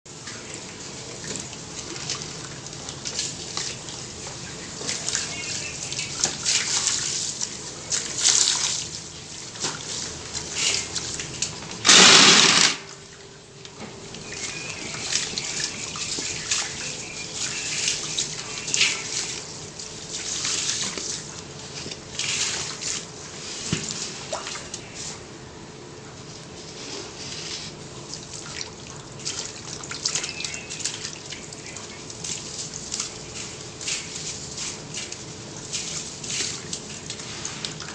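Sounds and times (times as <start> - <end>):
water trickling and dripping: 0.1 - 11.8, 12.8 - 25.3, 27.5 - 37.9
water gush: 0.1 - 13.4, 14.2 - 25.2.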